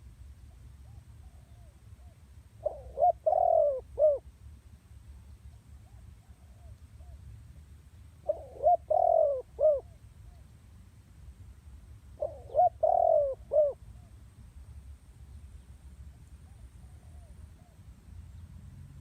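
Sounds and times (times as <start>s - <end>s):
dove cooing: 0.8s - 4.2s, 8.2s - 10.0s, 12.2s - 14.1s.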